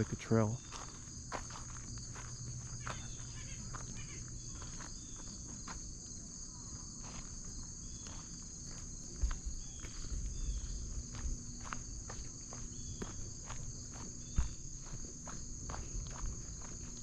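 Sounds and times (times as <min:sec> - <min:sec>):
footsteps on dirt trail: 0:00.0 - 0:17.0
high-pitched insect chorus: 0:00.0 - 0:17.0.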